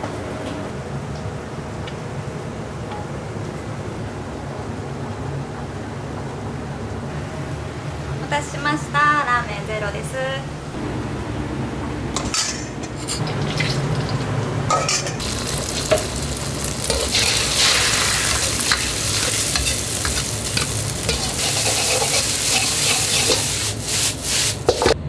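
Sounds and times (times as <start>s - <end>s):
egg sizzling in hot oil: 13.2s - 14.5s, 15.2s - 25.0s
metal ladle scraping a wok: 14.7s - 25.0s.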